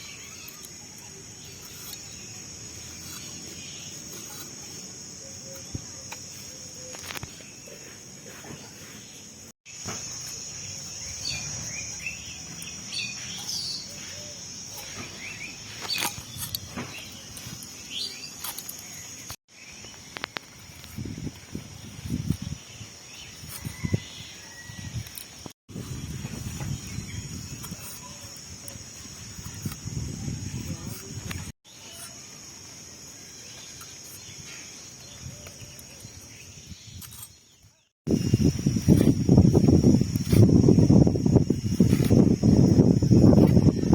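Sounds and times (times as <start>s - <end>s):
birds chirping: 0.0s - 25.1s.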